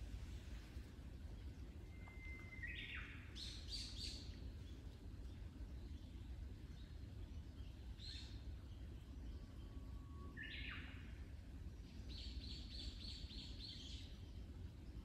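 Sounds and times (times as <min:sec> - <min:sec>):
whistled bird call: 0:01.8 - 0:03.2.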